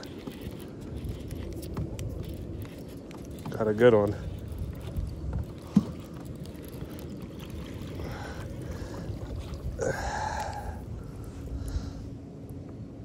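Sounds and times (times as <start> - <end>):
wind and water rumble: 0.0 - 13.0
water rush: 3.5 - 12.0.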